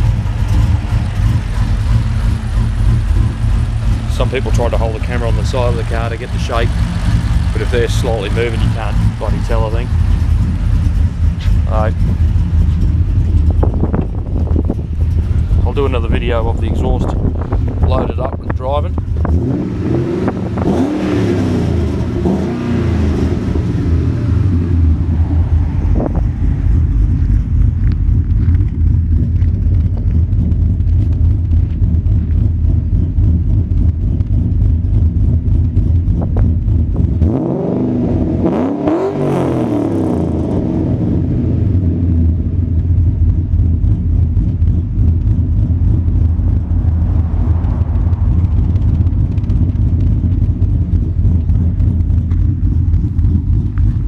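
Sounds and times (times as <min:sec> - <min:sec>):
v-eight engine idling and revving: 0:00.0 - 0:54.0.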